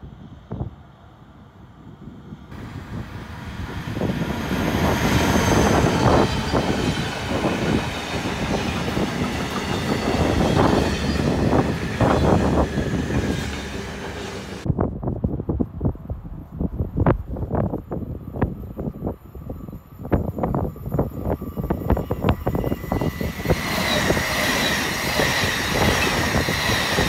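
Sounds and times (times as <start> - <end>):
freight train rumbling past: 0.0 - 27.0
train wheels clattering: 4.5 - 14.6.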